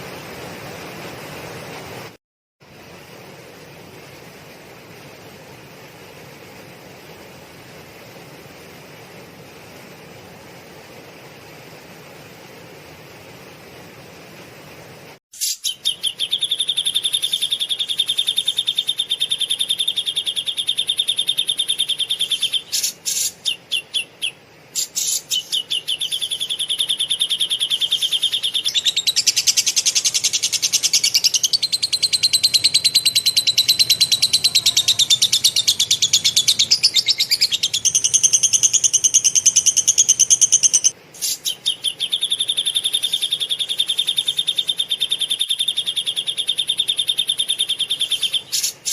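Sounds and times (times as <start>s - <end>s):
songbird chattering song: 15.4s - 48.9s.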